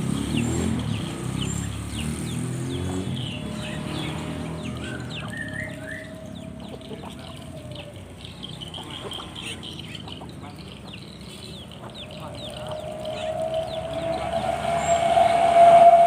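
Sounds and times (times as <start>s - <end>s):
small birds chirping: 0.0s - 15.3s
long steady tone: 12.2s - 16.0s.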